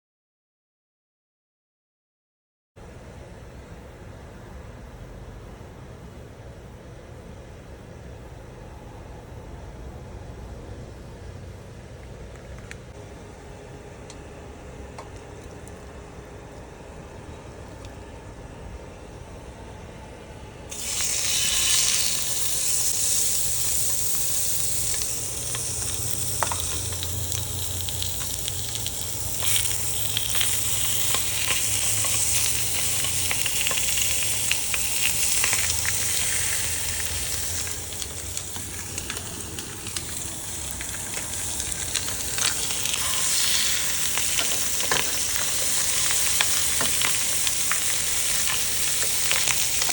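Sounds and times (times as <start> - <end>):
food sizzling in frying pan: 20.7 - 49.9.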